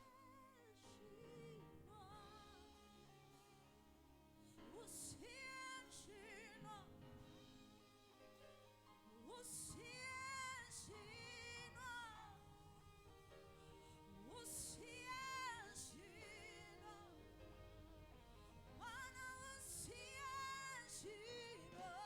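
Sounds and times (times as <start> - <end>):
person singing with vibrato: 13.7 - 17.5, 18.8 - 22.0.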